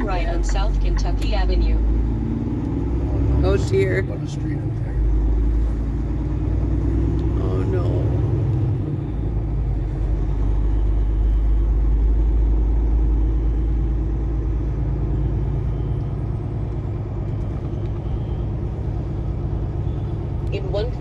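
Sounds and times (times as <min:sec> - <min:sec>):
truck engine and road rumble: 0:00.0 - 0:21.0.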